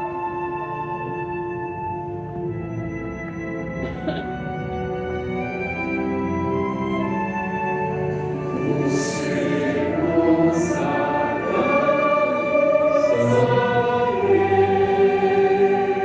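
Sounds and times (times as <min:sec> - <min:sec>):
music: 0:00.0 - 0:16.0
chorus singing held notes: 0:07.8 - 0:16.0.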